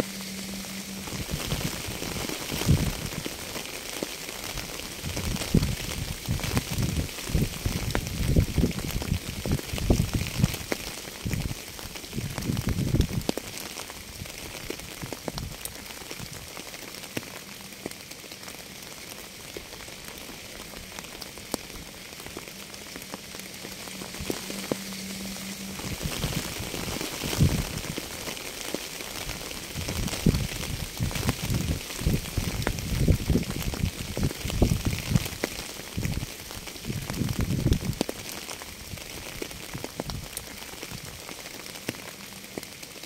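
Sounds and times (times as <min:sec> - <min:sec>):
deep rumbling: 0:00.0 - 0:03.7, 0:19.7 - 0:38.1
steady rain hissing: 0:00.0 - 0:43.0.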